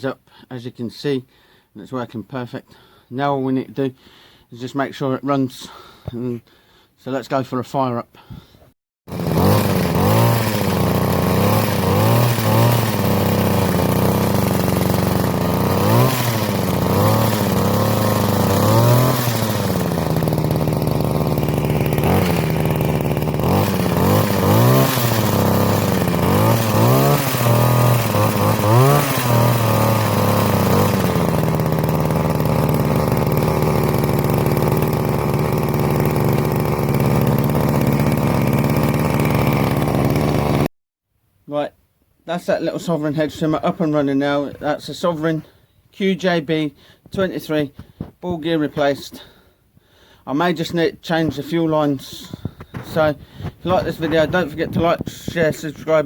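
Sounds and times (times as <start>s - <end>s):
hedge trimmer engine revving: 9.1s - 40.7s, 50.6s - 56.0s.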